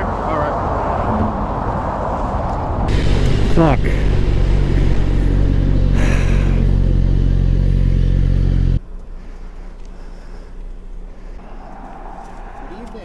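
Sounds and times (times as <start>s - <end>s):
motorcycle engine running: 2.9s - 9.0s.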